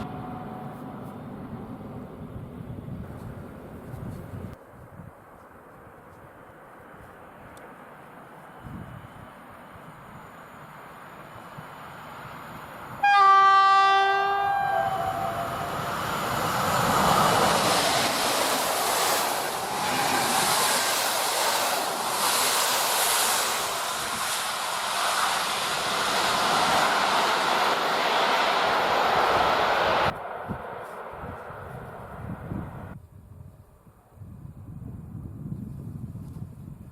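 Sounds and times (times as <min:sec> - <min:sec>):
train wheels rushing on rails: 0:08.3 - 0:33.0
locomotive horn: 0:13.0 - 0:15.8.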